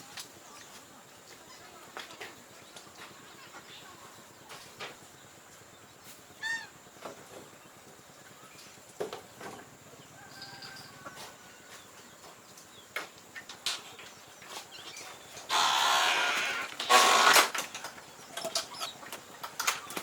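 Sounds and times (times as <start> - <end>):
poultry honking calls: 15.5 - 17.3.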